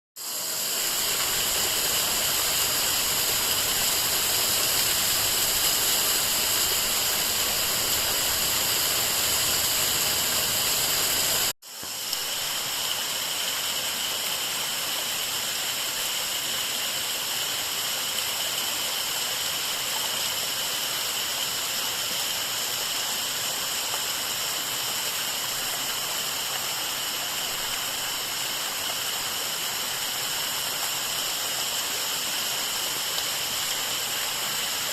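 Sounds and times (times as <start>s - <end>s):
waterfall rushing: 0.6s - 11.5s.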